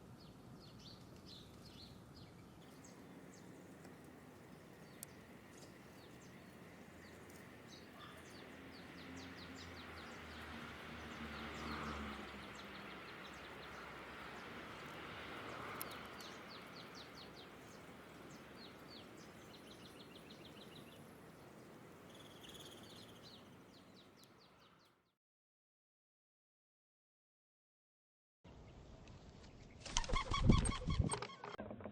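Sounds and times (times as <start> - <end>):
outdoor background noise: 0.0 - 25.1, 28.5 - 31.9
songbirds chirping: 0.0 - 25.1.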